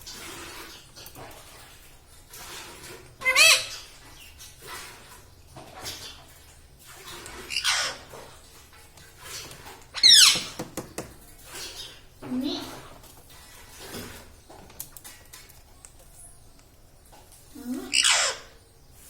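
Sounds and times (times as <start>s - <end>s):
parrot squawking: 3.2s - 3.9s, 7.5s - 8.0s, 10.0s - 10.5s, 17.9s - 18.6s.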